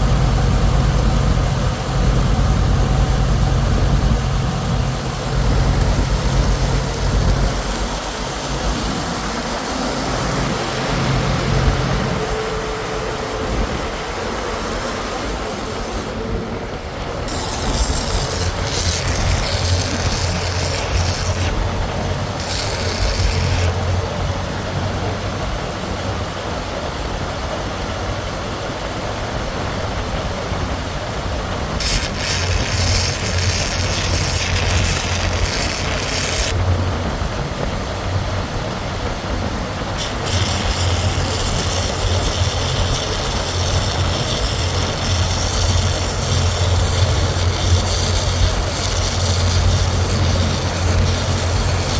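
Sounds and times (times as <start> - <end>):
heavy engine humming: 0.0 - 51.9
bursts of high hissing: 1.8 - 16.3, 17.2 - 24.0, 31.8 - 36.6, 40.0 - 51.9.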